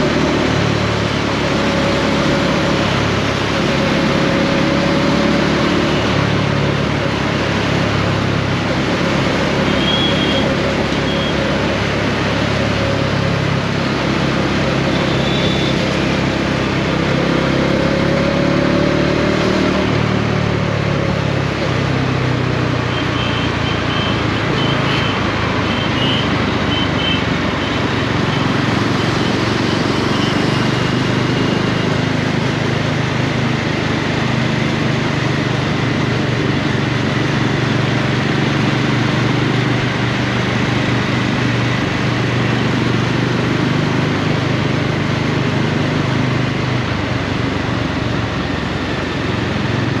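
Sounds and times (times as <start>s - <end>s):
road and wind noise: 0.0s - 50.0s
motorcycle engine running: 19.8s - 50.0s.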